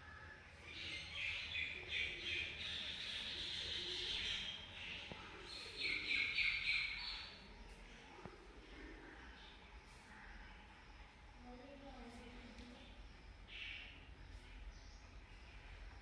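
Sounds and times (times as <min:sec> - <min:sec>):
birds calling: 0:00.7 - 0:07.8.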